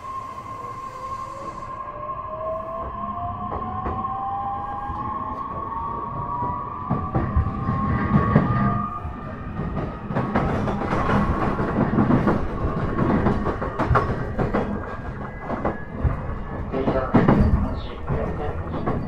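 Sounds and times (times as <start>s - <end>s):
train rumble: 0.0s - 19.0s
wheels clicking over rail joints: 9.6s - 19.0s.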